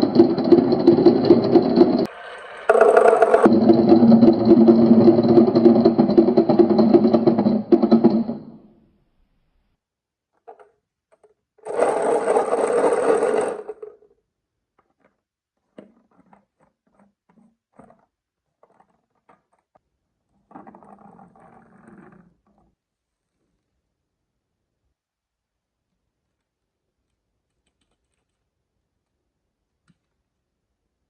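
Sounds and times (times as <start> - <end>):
marbles rolling on wooden track: 0.0 - 8.6, 11.6 - 14.1.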